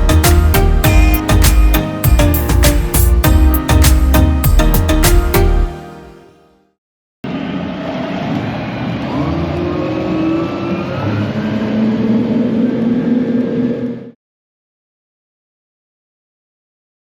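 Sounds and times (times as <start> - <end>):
boat engine speeding up: 7.3 - 14.2.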